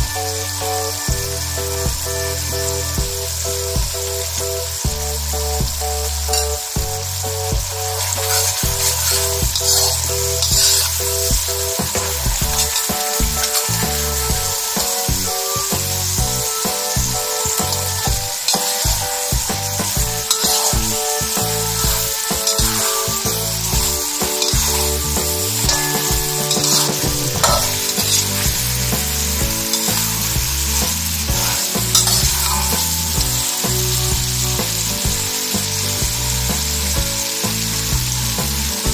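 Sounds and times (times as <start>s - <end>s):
sauce sizzling in a pan: 0.0s - 38.9s
spatula stirring: 7.9s - 34.3s.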